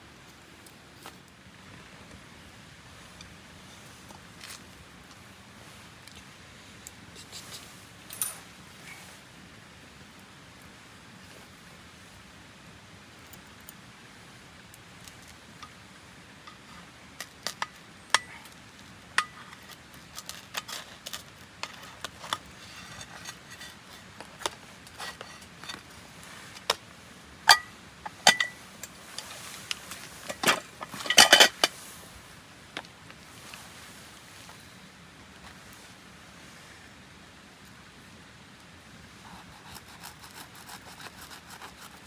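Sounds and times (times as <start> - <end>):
cookware clinking: 27.5 - 28.6, 30.2 - 31.7.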